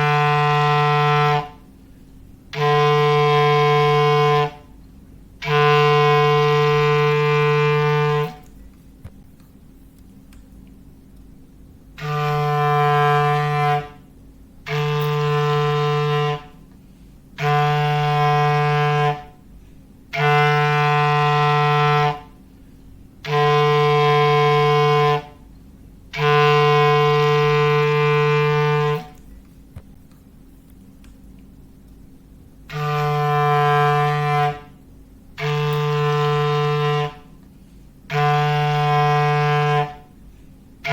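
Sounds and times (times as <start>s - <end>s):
clarinet low held note: 0.0s - 1.7s, 2.5s - 4.8s, 5.4s - 8.5s, 12.0s - 16.7s, 17.4s - 19.5s, 20.1s - 22.4s, 23.2s - 25.5s, 26.1s - 29.2s, 32.7s - 34.8s, 35.4s - 37.4s, 38.1s - 40.2s.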